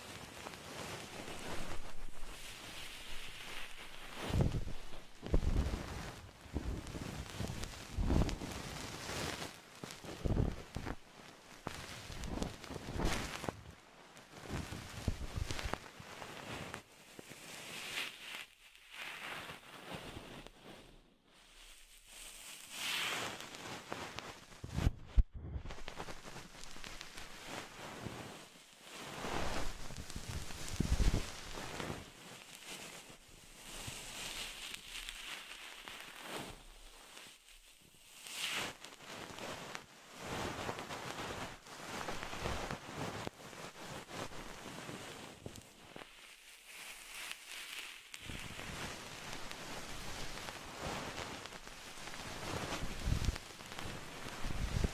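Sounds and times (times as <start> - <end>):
scratchy rustling: 0.7 - 9.4, 29.0 - 37.3, 43.8 - 54.9.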